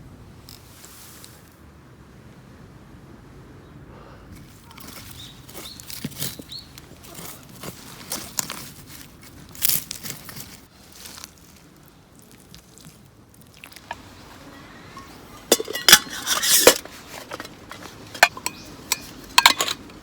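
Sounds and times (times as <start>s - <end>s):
camping gear rustling and knocking: 4.4s - 11.6s, 13.6s - 20.0s.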